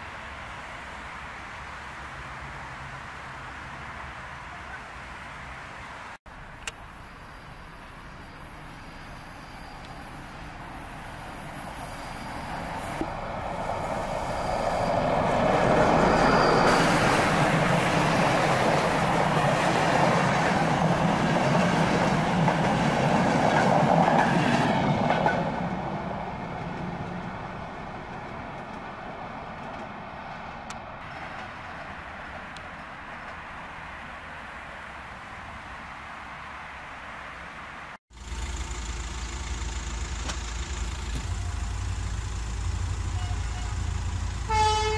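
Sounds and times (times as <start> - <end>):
passenger train passing: 6.3 - 35.6, 38.3 - 44.9
rail rumble: 6.3 - 35.6, 38.1 - 44.9.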